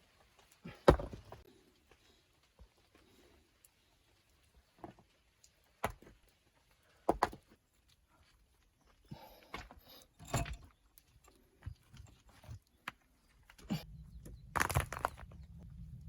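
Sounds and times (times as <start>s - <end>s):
hand tools knocking earth and stone: 0.7s - 1.4s, 13.6s - 15.8s.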